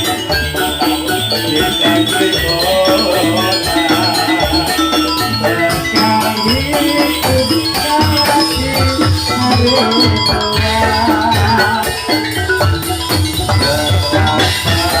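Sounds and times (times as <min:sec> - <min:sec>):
struck metallic gamelan notes: 0:00.0 - 0:15.0.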